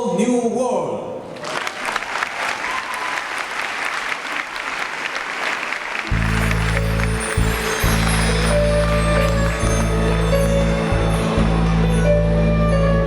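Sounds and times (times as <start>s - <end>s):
audience applauding: 1.3s - 13.0s
deep music over sound system: 6.2s - 13.0s.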